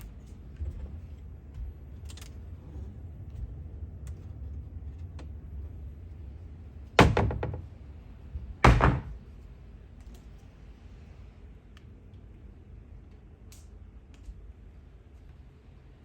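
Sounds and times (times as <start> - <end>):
low steady rumble: 0.0 - 16.0
clattering knocks: 7.0 - 7.8, 8.6 - 9.2.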